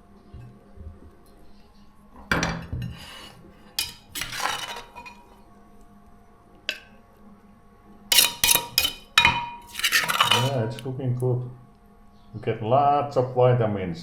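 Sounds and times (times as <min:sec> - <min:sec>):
cutlery clinking on dishes: 0:02.3 - 0:05.3, 0:08.1 - 0:10.8.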